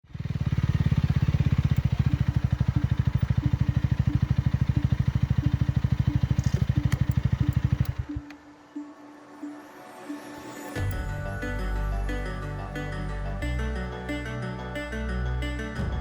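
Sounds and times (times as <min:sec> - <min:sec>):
motorcycle engine idling: 0:00.0 - 0:08.4.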